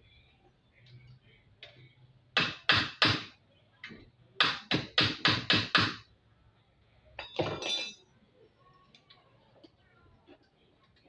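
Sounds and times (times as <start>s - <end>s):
hammer strikes: 2.4s - 3.3s, 4.4s - 6.0s.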